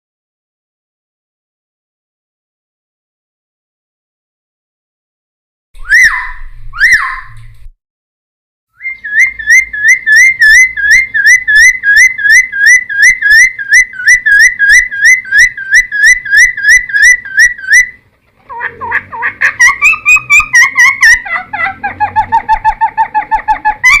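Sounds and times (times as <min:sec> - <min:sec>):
bird whistling rapid notes: 0:05.8 - 0:07.4, 0:08.8 - 0:18.0, 0:19.6 - 0:21.3.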